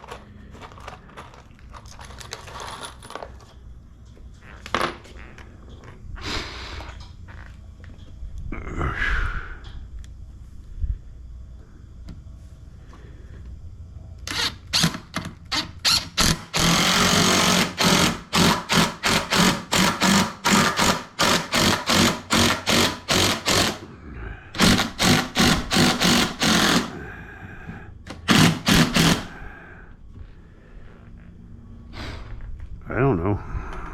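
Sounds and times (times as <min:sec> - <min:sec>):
power drill driving screws: 0:14.3 - 0:23.8, 0:24.6 - 0:26.9, 0:28.1 - 0:29.3.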